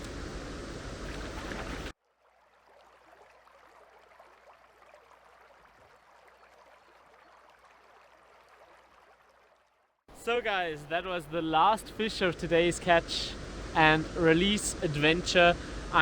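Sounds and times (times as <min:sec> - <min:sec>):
stream water rushing: 0:00.0 - 0:01.9, 0:10.1 - 0:16.0.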